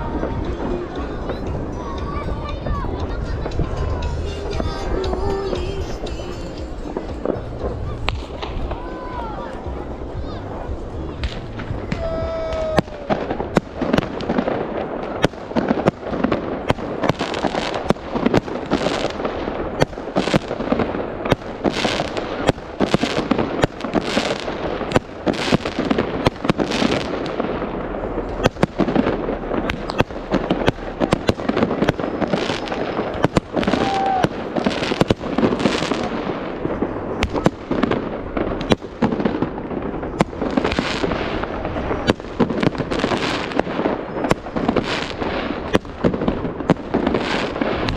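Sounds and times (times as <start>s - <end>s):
fireworks banging and crackling: 0.0s - 47.9s.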